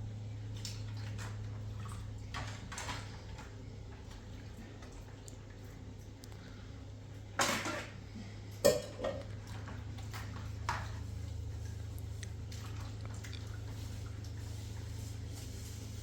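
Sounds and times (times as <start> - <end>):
steady low hum: 0.0 - 16.0
dishes clinking and knocking: 8.6 - 9.3.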